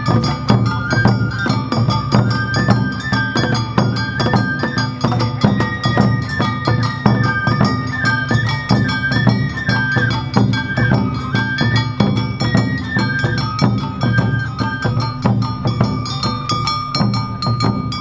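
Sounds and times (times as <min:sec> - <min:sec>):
bamboo flute melody: 0:00.0 - 0:18.0
taiko drums: 0:00.0 - 0:18.0
hand gong clanging: 0:13.4 - 0:18.0.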